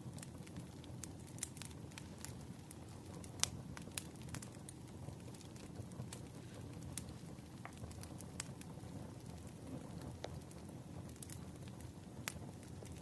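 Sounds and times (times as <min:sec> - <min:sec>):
low rumble of burning logs: 0:00.0 - 0:13.0
wood fire popping and snapping: 0:00.0 - 0:13.0.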